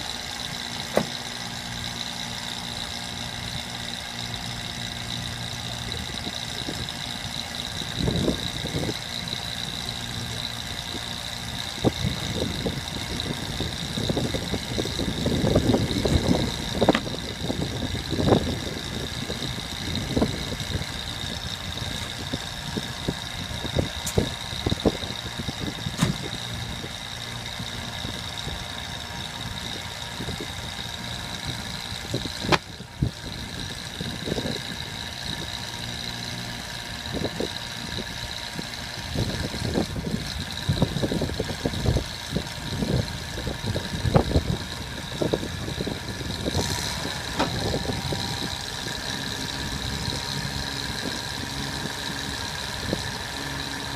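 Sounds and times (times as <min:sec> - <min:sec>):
truck engine idling: 0:00.0 - 0:53.9
knocks and clunks: 0:00.9 - 0:01.2, 0:16.0 - 0:17.2, 0:26.0 - 0:26.2, 0:32.5 - 0:32.7.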